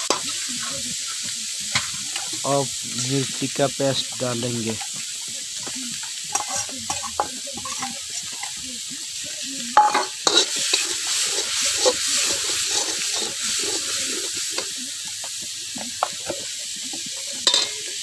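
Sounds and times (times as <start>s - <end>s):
paste sizzling in oil: 0.0s - 18.0s
spatula clattering: 0.0s - 18.0s
metal spatula scraping a pan: 5.6s - 8.6s, 9.8s - 14.8s, 16.0s - 18.0s.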